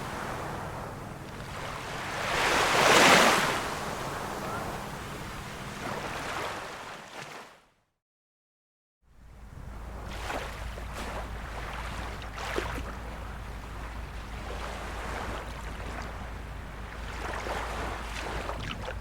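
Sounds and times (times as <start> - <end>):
small waves lapping on shore: 0.0 - 7.6, 9.2 - 19.0
low rumble: 9.1 - 19.0.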